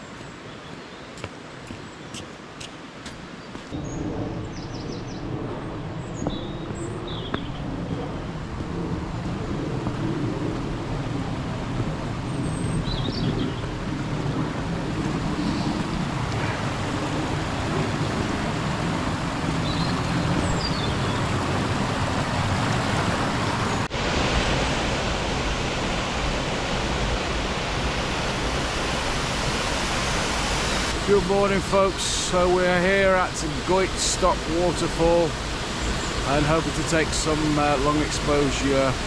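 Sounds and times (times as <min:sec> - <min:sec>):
steady rushing water: 0:00.0 - 0:39.0
powerful waterfall rushing: 0:08.4 - 0:39.0.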